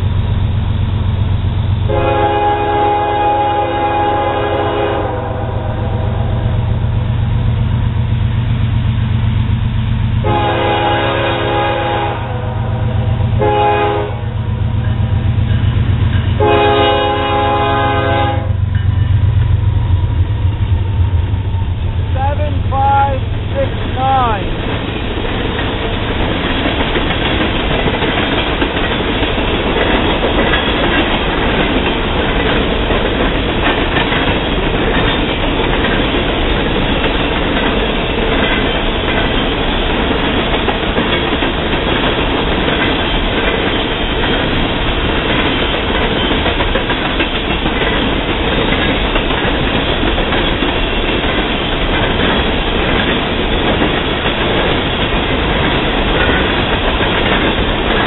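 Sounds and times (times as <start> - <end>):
freight train wheels rumbling: 0.0 - 58.0
wheels clicking over rail joints: 18.6 - 58.0.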